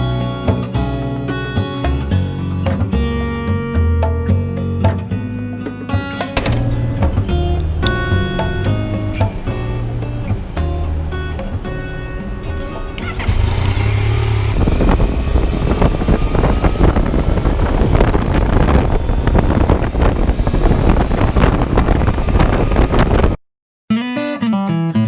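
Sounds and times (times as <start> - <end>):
motorcycle engine running: 6.1 - 23.4
wind rushing over microphone: 13.3 - 23.4.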